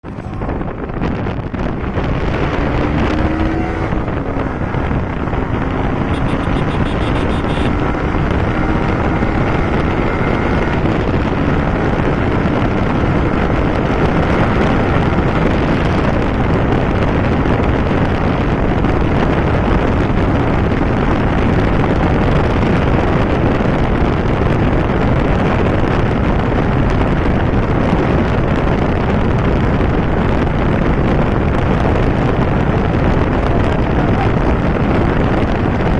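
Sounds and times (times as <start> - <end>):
motorcycle engine running hard: 0.0 - 35.9
wind roar on microphone: 0.0 - 35.9.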